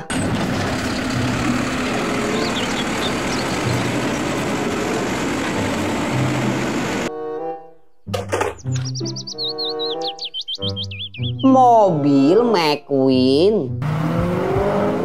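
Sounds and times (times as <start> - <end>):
garbage truck engine running: 0.0 - 7.1
hydraulic arm lifting trash cart: 0.0 - 7.1.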